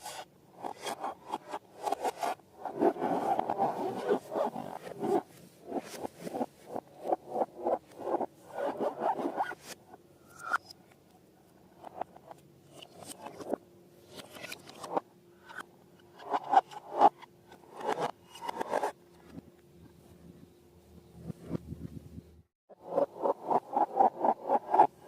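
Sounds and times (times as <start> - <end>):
slime scraping and rubbing: 1.8 - 9.7.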